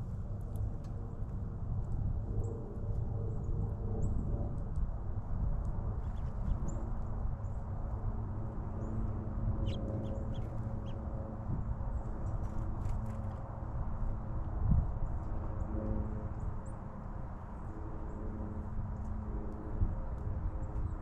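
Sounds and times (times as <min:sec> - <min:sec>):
faint hum: 0:00.0 - 0:21.0
small birds chirping: 0:06.0 - 0:06.8, 0:09.6 - 0:11.0.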